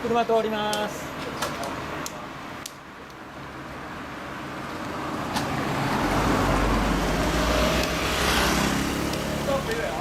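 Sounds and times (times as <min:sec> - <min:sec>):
car engine and tyre noise: 0:00.0 - 0:10.0.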